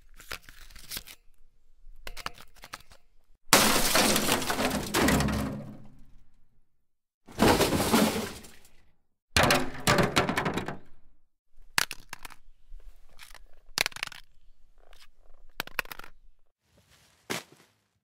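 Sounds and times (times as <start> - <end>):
knocks and clattering hits: 3.6 - 5.9, 7.3 - 8.6, 9.4 - 11.0.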